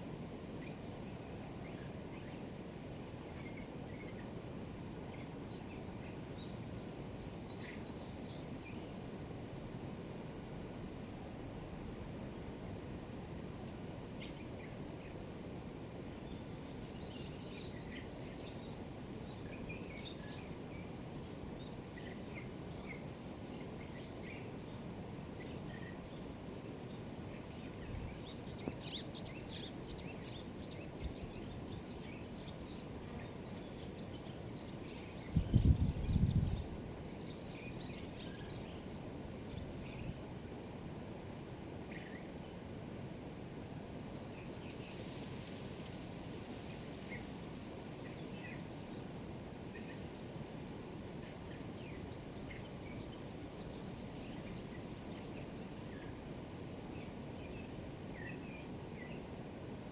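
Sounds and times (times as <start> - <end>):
background hiss: 0.0 - 59.9
thrush twittering song: 0.1 - 10.5, 13.8 - 59.9.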